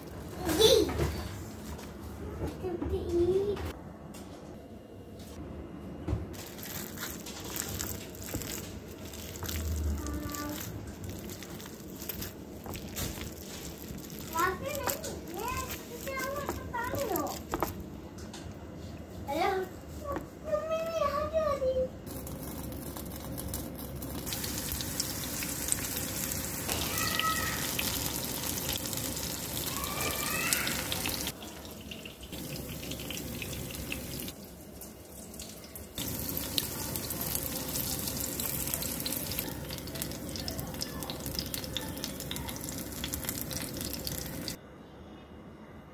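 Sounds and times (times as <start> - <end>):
batter deep-frying in oil: 6.3 - 17.8, 22.0 - 44.6.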